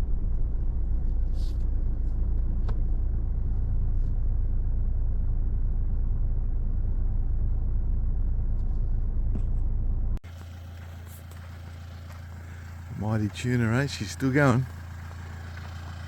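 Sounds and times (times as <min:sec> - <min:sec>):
low rumble: 0:00.0 - 0:13.4.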